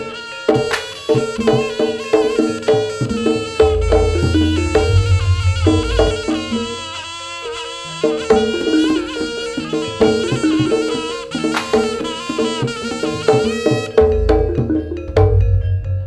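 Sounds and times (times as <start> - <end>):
drums and gamelan percussion: 0.0 - 16.0
wavering reed melody: 0.0 - 16.0
deep low tone: 3.7 - 6.4, 14.4 - 16.0.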